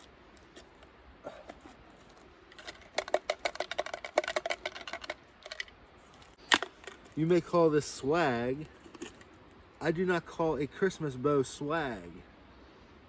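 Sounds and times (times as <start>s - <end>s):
clicks and crinkles: 0.0s - 7.2s
hands rummaging through container: 1.5s - 5.7s.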